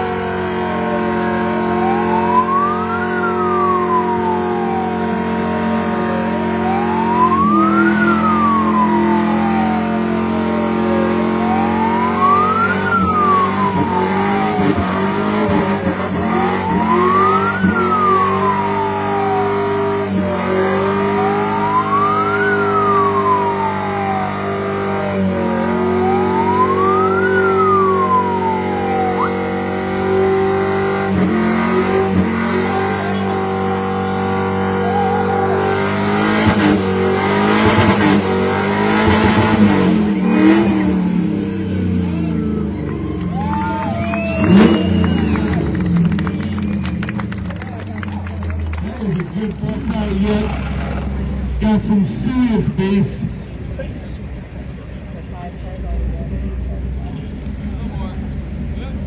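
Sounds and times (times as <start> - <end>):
wailing siren: 0.0 - 47.1
low drone: 49.4 - 57.2.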